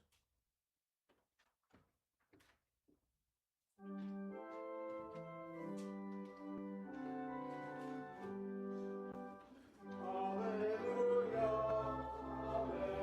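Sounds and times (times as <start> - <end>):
church organ hymn chords: 3.9 - 13.0.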